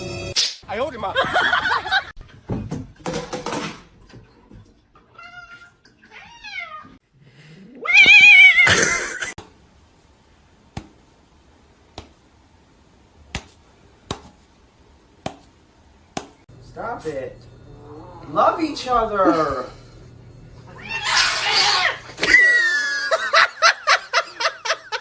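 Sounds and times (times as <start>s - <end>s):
cat meowing: 5.2s - 7.0s.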